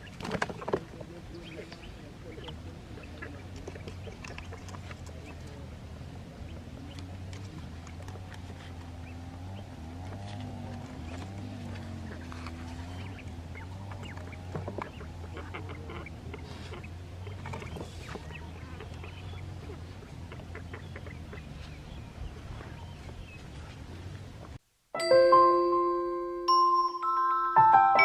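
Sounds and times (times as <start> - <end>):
fowl clucking and chirping: 11.9 - 23.0.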